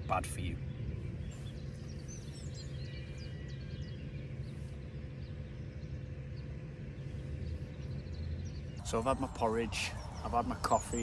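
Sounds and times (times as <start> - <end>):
faint steady hum: 0.0 - 11.0
small birds chirping: 0.0 - 11.0
steady low rumble: 0.0 - 11.0.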